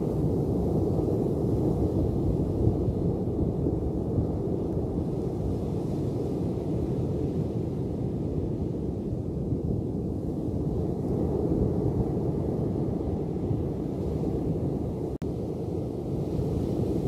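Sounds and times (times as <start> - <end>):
ocean surf washing: 11.3 - 17.0.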